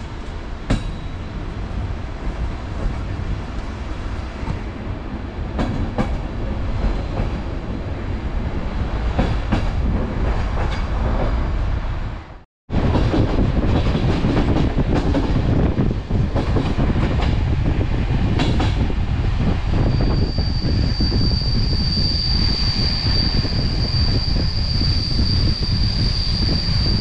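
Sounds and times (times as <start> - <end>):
train rumbling at speed: 0.0 - 27.0
high-pitched wheel squeal: 19.7 - 27.0.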